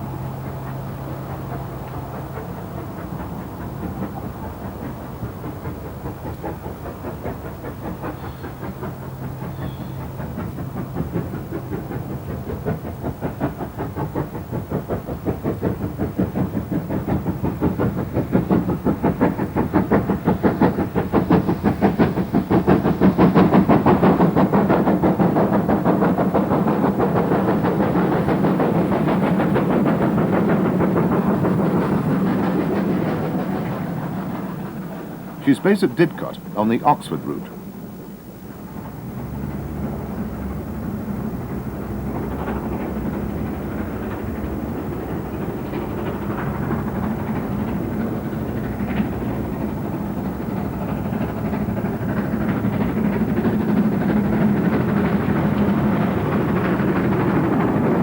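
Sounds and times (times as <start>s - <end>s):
steam locomotive exhaust beats: 0.0s - 58.0s.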